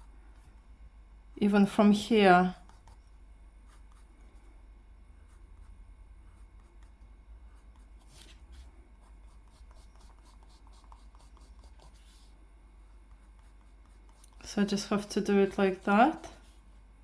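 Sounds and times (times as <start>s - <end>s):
low steady hum: 0.0s - 17.0s
drawing tool scratching on paper: 2.5s - 3.1s, 3.7s - 4.3s, 6.3s - 15.1s.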